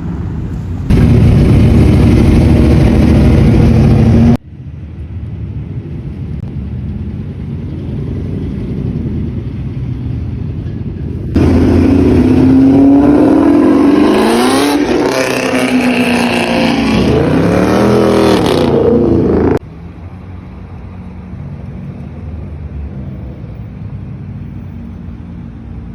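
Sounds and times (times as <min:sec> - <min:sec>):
car engine rumbling: 0:00.0 - 0:25.0
car engine revving: 0:00.8 - 0:04.4, 0:11.3 - 0:19.6.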